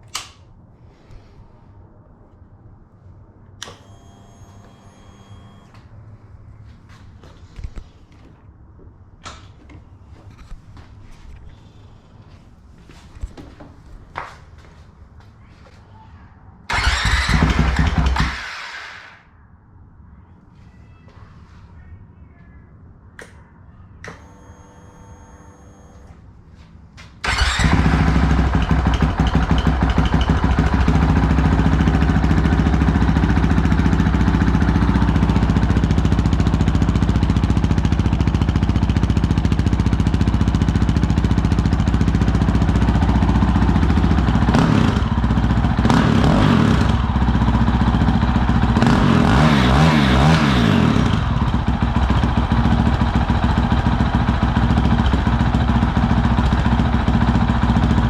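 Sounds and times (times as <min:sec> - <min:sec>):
motorcycle engine idling: 0:27.2 - 0:49.6, 0:50.3 - 0:58.0.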